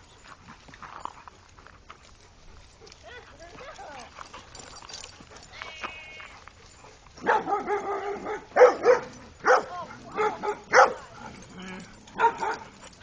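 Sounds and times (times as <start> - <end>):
dog howling bark: 7.2 - 11.0, 11.6 - 12.6.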